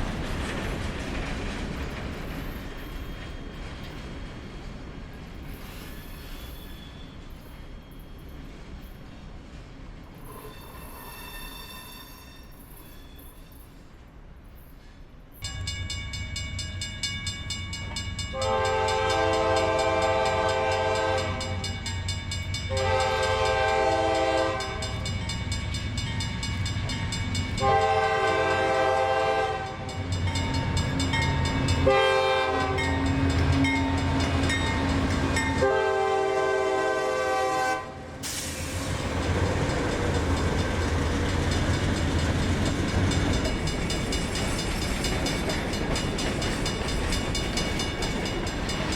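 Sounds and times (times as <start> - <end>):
locomotive horn blasts: 18.3 - 21.8, 22.7 - 25.0, 27.6 - 30.0, 31.8 - 34.1, 35.4 - 38.1
locomotive engine rumble: 25.8 - 47.0.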